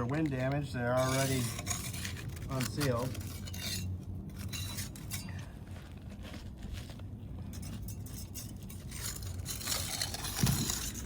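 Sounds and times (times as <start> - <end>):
steady low rumble: 0.0 - 11.0
putty knife scraping shingles: 0.4 - 5.3, 7.6 - 11.0.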